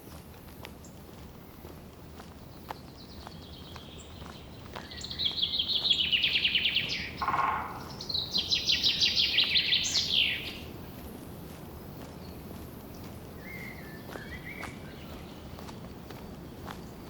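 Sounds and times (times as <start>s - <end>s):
songbird trilling: 3.4s - 10.7s
low buzzy bird note: 7.2s - 8.4s.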